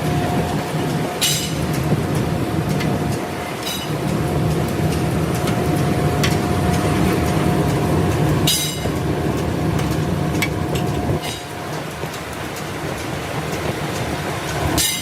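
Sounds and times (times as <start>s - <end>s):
factory machinery humming: 0.0s - 15.0s
sharp metal clank: 1.2s - 1.6s.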